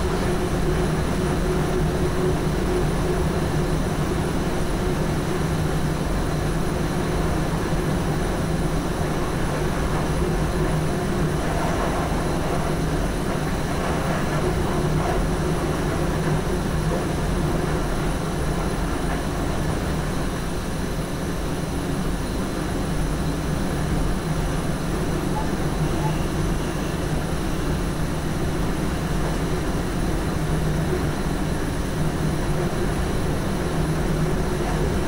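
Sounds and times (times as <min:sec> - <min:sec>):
constant low hum: 0:00.0 - 0:35.0.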